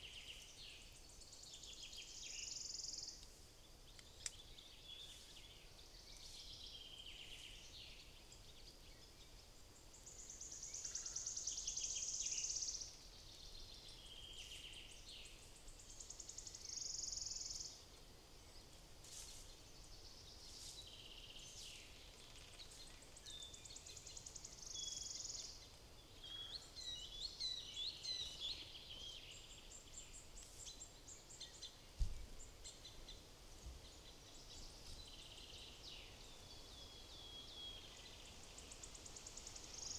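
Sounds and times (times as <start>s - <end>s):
faint outdoor noise: 0.0s - 39.9s
songbirds trilling and chirping: 0.0s - 39.9s
short low thump: 32.0s - 32.3s.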